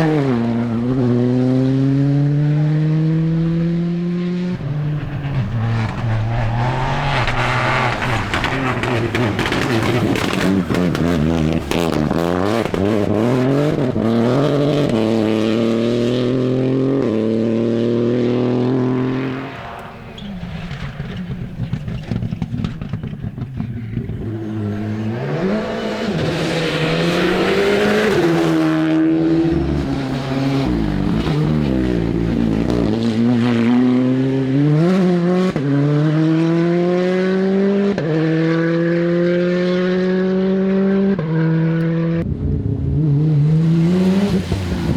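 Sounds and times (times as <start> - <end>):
rally car engine accelerating: 0.0 - 44.9
exhaust pops and crackles: 5.6 - 12.9, 19.6 - 24.3.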